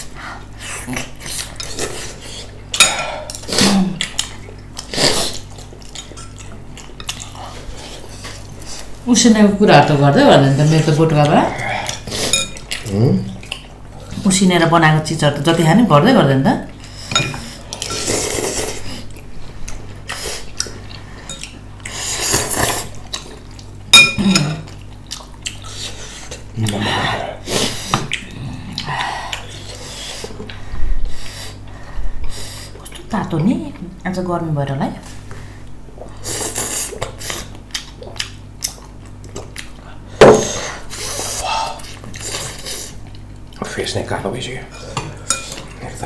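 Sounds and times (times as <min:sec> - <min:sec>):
wet eating sounds: 0:00.0 - 0:14.7, 0:16.7 - 0:34.0, 0:35.0 - 0:43.8
utensils clinking on dishes: 0:12.2 - 0:12.7, 0:17.0 - 0:18.2, 0:23.9 - 0:24.7, 0:44.7 - 0:45.7.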